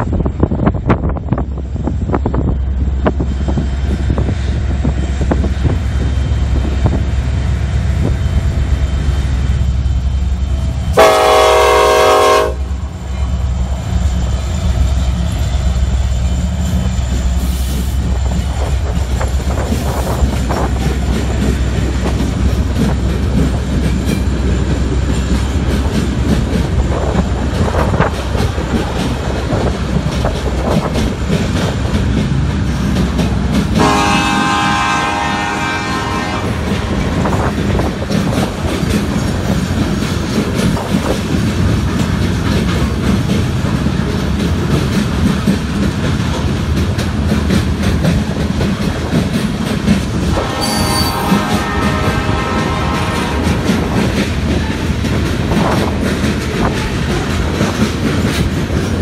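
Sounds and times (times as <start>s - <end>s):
diesel locomotive engines rumbling: 0.0s - 59.0s
train wheels clicking on rails: 0.0s - 59.0s
train horn blast: 10.9s - 12.9s, 33.8s - 37.2s, 50.3s - 53.9s.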